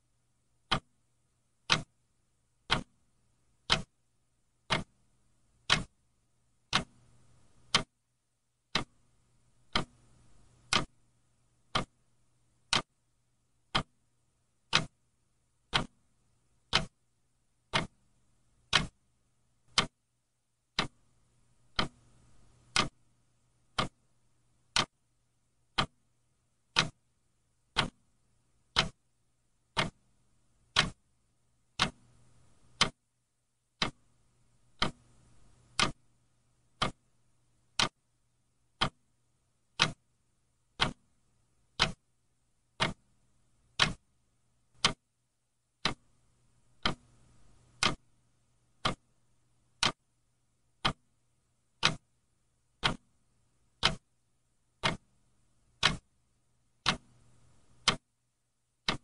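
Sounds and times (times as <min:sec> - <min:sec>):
clock ticking: 0:00.6 - 0:01.0, 0:01.6 - 0:02.0, 0:02.6 - 0:04.0, 0:04.6 - 0:05.0, 0:05.6 - 0:06.0, 0:06.6 - 0:07.9, 0:08.7 - 0:11.0, 0:11.6 - 0:12.0, 0:12.6 - 0:13.0, 0:13.6 - 0:15.0, 0:15.6 - 0:17.0, 0:17.6 - 0:19.0, 0:19.7 - 0:20.0, 0:20.7 - 0:23.0, 0:23.6 - 0:24.0, 0:24.6 - 0:25.0, 0:25.7 - 0:26.0, 0:26.7 - 0:27.0, 0:27.6 - 0:29.0, 0:29.7 - 0:30.1, 0:30.7 - 0:31.0, 0:31.7 - 0:33.0, 0:33.8 - 0:34.1, 0:34.7 - 0:36.1, 0:36.7 - 0:37.1, 0:37.7 - 0:38.0, 0:38.8 - 0:39.1, 0:39.7 - 0:40.1, 0:40.7 - 0:41.1, 0:41.7 - 0:42.1, 0:42.8 - 0:44.1, 0:44.7 - 0:45.1, 0:45.8 - 0:46.2, 0:46.8 - 0:48.1, 0:48.8 - 0:49.2, 0:49.8 - 0:50.0, 0:50.8 - 0:51.2, 0:51.8 - 0:52.2, 0:52.8 - 0:53.2, 0:53.8 - 0:54.2, 0:54.8 - 0:56.1, 0:56.8 - 0:58.1.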